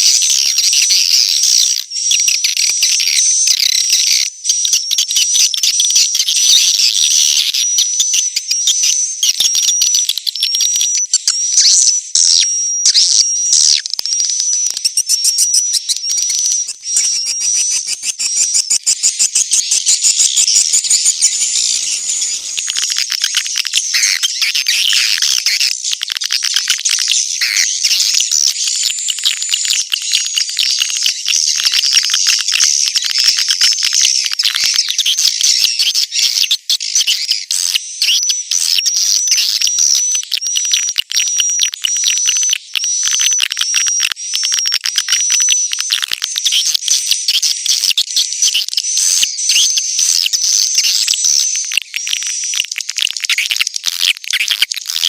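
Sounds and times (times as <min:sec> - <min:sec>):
swiftlets twittering: 0:16.2 - 0:25.0.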